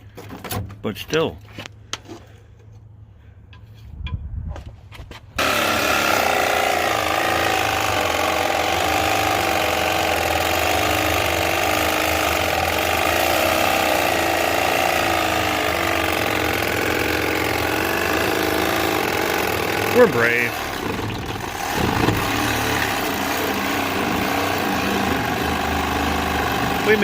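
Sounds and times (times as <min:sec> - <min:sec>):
reciprocating saw cutting steel: 0:05.4 - 0:27.0.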